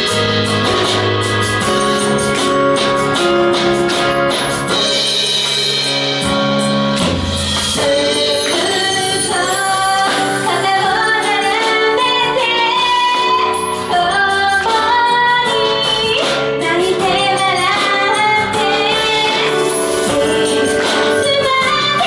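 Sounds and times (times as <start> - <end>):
band backing: 0.0 - 22.0
woman singing pop song: 7.8 - 22.0.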